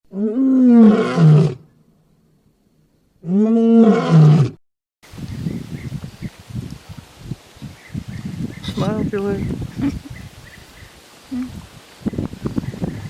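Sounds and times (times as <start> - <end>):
lion roaring: 0.1 - 1.6, 3.2 - 4.6.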